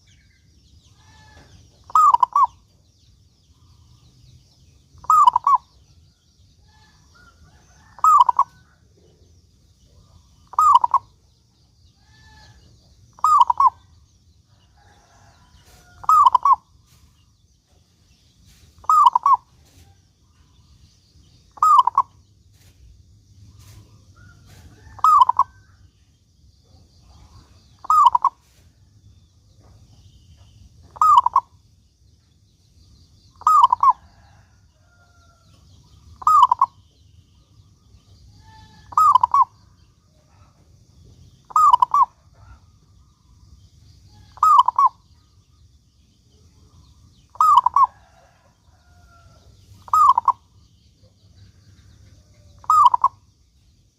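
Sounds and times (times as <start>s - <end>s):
dove cooing: 1.0s - 2.6s, 5.0s - 5.7s, 7.8s - 8.6s, 10.5s - 11.1s, 13.2s - 13.8s, 15.9s - 16.6s, 18.8s - 19.5s, 21.6s - 22.1s, 24.4s - 25.6s, 27.2s - 28.4s, 30.9s - 31.5s, 33.4s - 34.5s, 36.2s - 36.8s, 38.4s - 39.6s, 41.5s - 42.6s, 44.3s - 45.0s, 47.3s - 48.4s, 49.9s - 50.4s, 52.2s - 53.2s.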